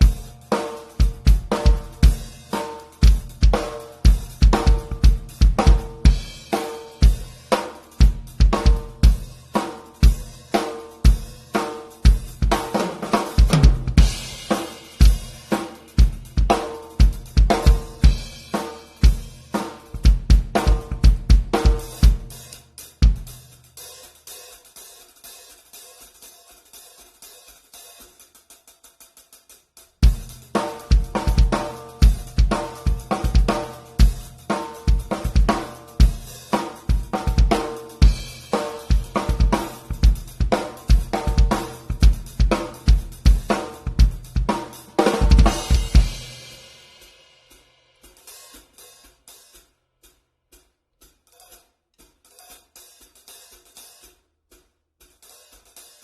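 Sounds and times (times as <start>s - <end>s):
drum kit groove: 0.0s - 56.0s
hi-hat ticks: 0.0s - 56.0s.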